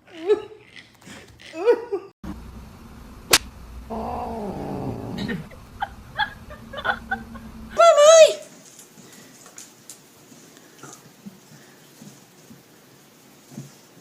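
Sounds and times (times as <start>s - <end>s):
sharp click: 3.3s - 3.6s
cat yowling: 3.9s - 7.8s.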